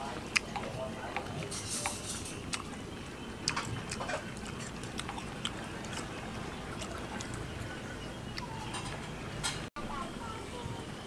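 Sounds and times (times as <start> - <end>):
person chewing: 0.3 - 8.5.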